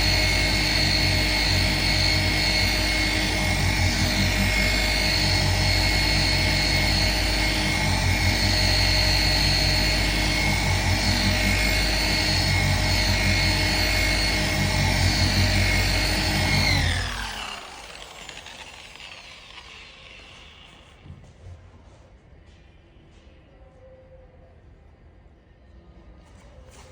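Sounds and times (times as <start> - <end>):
power tool spinning down: 0.0 - 21.1
power tool whining: 0.0 - 21.1.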